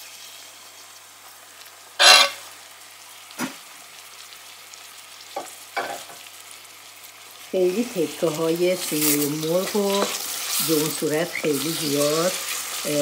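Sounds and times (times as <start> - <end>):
chicken sizzling in hot oil: 0.0 - 13.0
metal spoon scraping glass board: 2.0 - 2.4.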